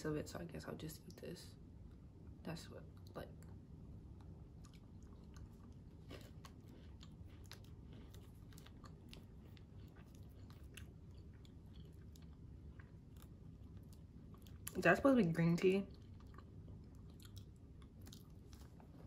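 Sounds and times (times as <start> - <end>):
chewing crunchy wafer: 4.0 - 19.0.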